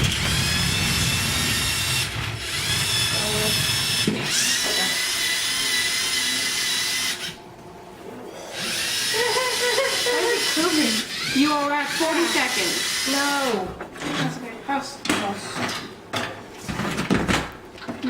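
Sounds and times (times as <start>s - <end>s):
small electric motors whining: 0.0s - 7.4s, 8.5s - 13.6s.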